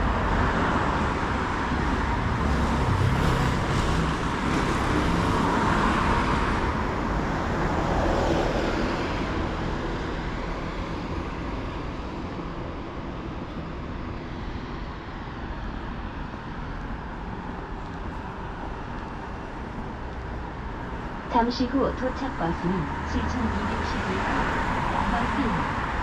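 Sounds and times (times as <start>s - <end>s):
traffic hum: 0.0s - 26.0s.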